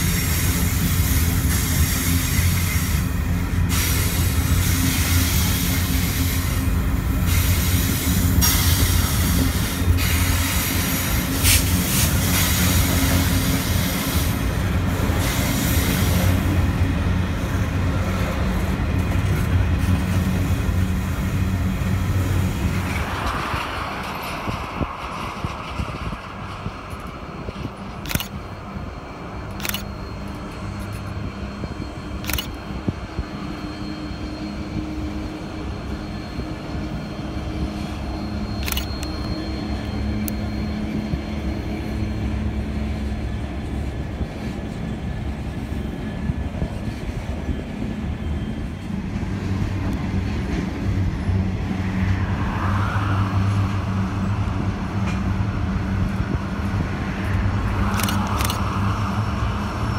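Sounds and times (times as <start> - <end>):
train rumbling: 0.0 - 59.9
sharp clicks: 27.9 - 28.4, 29.4 - 29.9, 32.2 - 32.6, 57.9 - 58.7.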